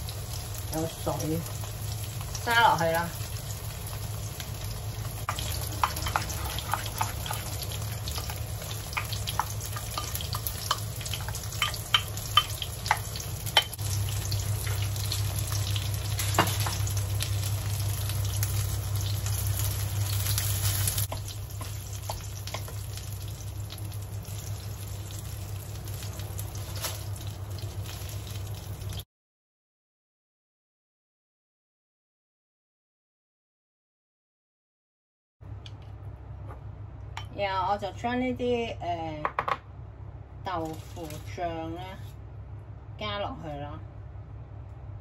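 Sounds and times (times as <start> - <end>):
low hum: 0.0 - 28.8
tofu sizzling in oil: 0.0 - 29.0, 40.6 - 41.4
spatula and chopsticks tapping: 5.2 - 13.8, 21.0 - 22.9.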